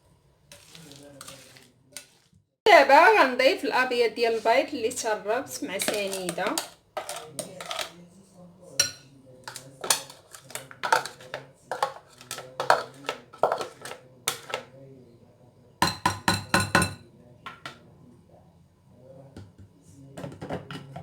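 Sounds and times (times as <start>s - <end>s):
utensil knocking on mixing bowl: 10.8s - 14.7s, 15.8s - 17.8s.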